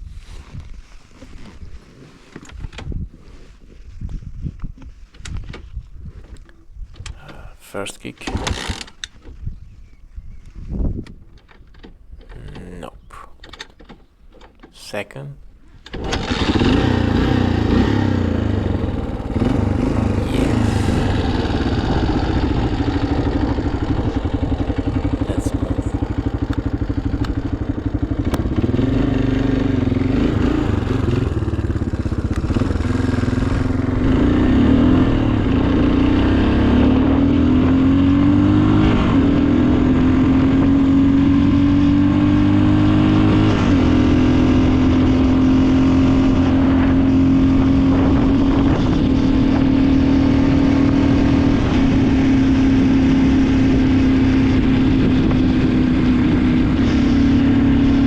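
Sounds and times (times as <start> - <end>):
motorcycle engine running: 16.0 - 58.0.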